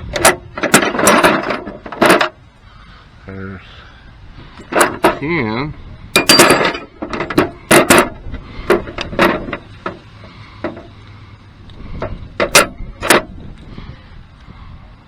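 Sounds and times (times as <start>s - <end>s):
metal tools clicking and knocking: 0.1s - 2.4s, 6.2s - 10.0s, 12.0s - 13.3s.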